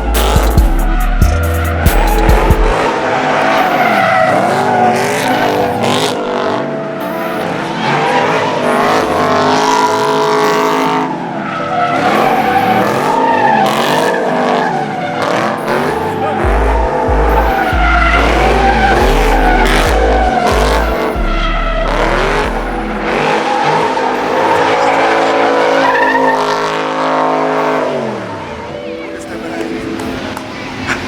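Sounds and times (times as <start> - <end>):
car engine revving: 0.0 - 31.0
tyre squeal: 2.7 - 6.2, 11.8 - 28.4.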